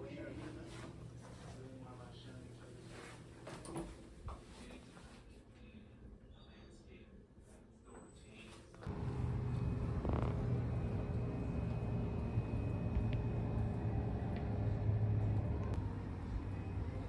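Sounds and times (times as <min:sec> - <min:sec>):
car engine and road hum: 0:08.8 - 0:17.0.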